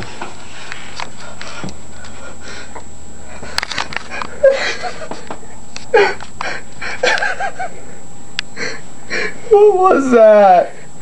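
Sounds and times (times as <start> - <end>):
person wheezing and gasping: 5.9 - 7.1.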